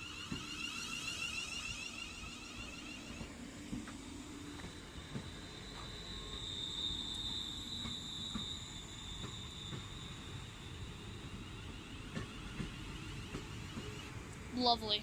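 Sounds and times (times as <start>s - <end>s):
high-pitched train whine: 0.0s - 15.0s
train rumbling: 2.6s - 15.0s.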